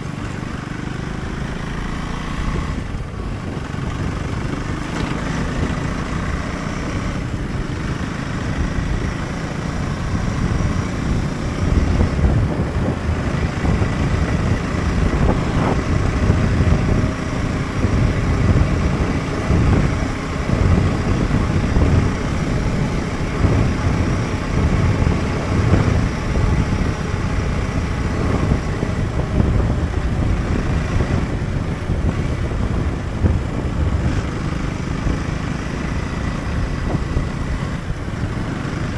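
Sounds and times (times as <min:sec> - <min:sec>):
motorcycle engine rumbling: 0:00.0 - 0:38.9.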